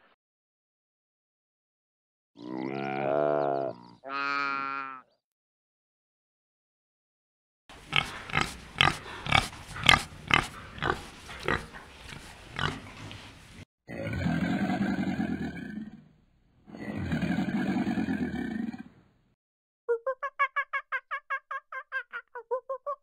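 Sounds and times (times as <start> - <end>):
wild boar grunting: 7.7 - 13.2, 13.9 - 16.1, 16.7 - 19.0
crocodile bellowing: 13.9 - 16.0, 16.7 - 19.0.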